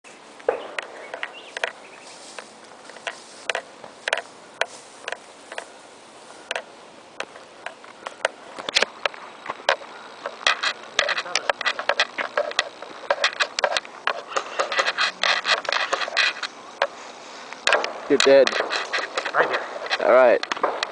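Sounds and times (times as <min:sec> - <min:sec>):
airsoft guns firing: 0:00.5 - 0:01.0, 0:20.6 - 0:20.9.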